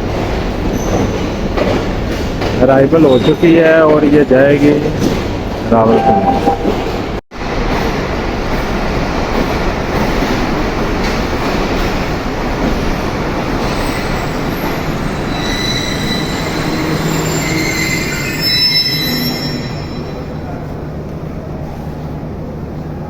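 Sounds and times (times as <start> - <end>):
high wheel squeals: 13.8 - 20.2.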